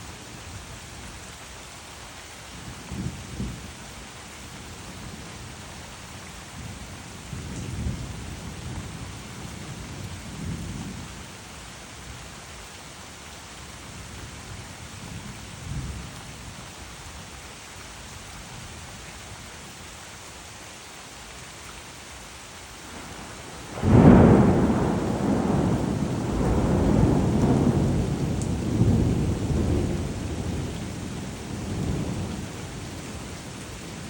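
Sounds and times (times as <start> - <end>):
steady rain: 0.0 - 34.0
loud thunderclap: 22.9 - 32.3
distant thunder rumbles: 22.9 - 34.0.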